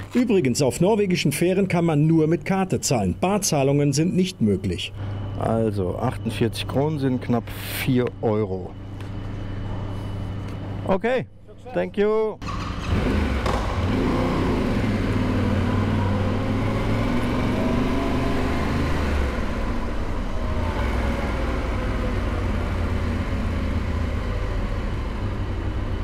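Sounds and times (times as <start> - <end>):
motorcycle engine running: 12.4 - 26.0.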